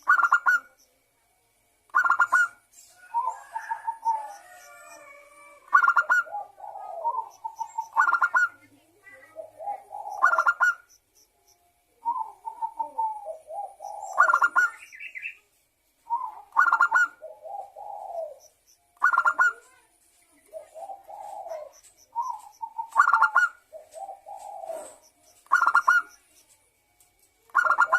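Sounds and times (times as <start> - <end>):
faint high chirps: 0.0 - 26.6
dove cooing: 2.0 - 10.9, 12.0 - 14.9, 16.1 - 19.8, 20.4 - 26.2, 27.5 - 27.9.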